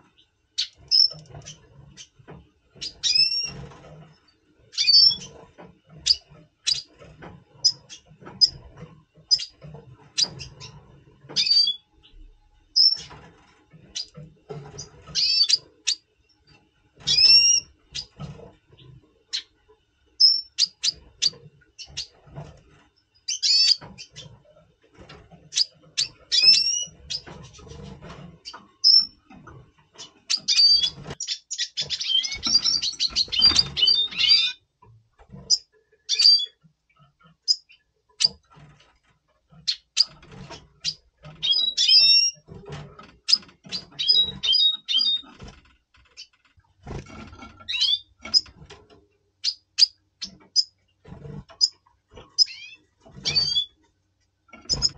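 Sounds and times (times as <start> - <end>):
bird twittering song: 0.0 - 3.8, 4.7 - 7.0, 7.6 - 13.2, 13.8 - 19.6, 20.2 - 22.2, 23.1 - 24.4, 25.4 - 27.8, 28.4 - 34.7, 35.3 - 38.4, 39.6 - 42.5, 43.2 - 45.5, 47.6 - 48.6, 49.4 - 53.8
birds chirping: 0.0 - 38.8, 39.5 - 54.9.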